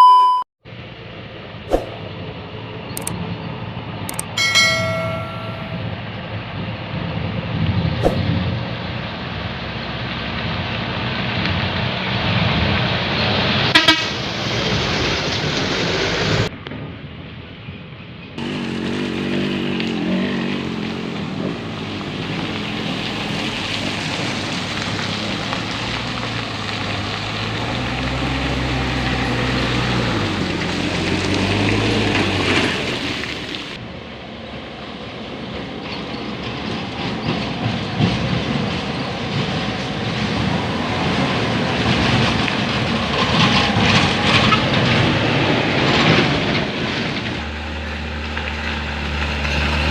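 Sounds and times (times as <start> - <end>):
truck diesel engine under load: 18.4 - 49.9.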